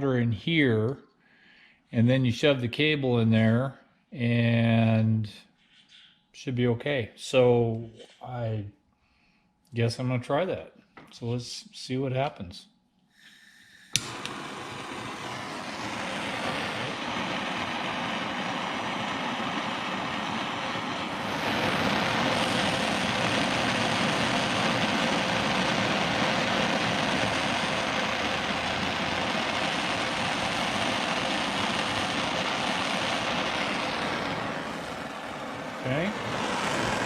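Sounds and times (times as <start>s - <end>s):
gas torch roaring: 13.2s - 37.0s.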